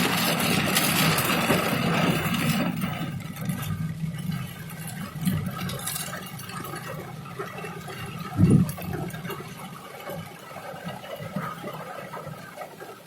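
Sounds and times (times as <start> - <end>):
rain falling: 3.4 - 13.0.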